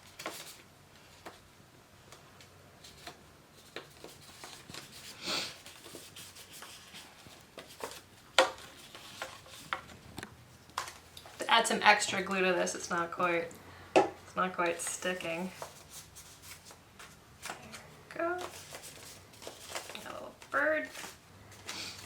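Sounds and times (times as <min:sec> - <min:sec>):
paper rustling: 0:00.0 - 0:01.4, 0:02.8 - 0:10.1, 0:14.6 - 0:22.0
paper rubbing: 0:03.6 - 0:08.0.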